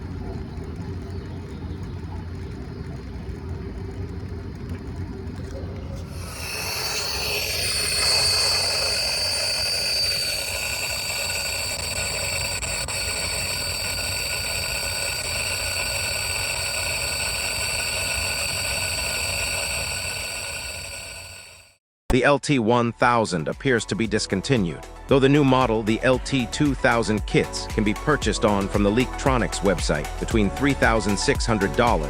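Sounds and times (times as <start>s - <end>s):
steady high tones: 6.0s - 21.8s
water flow hiss in pipe: 6.0s - 21.8s.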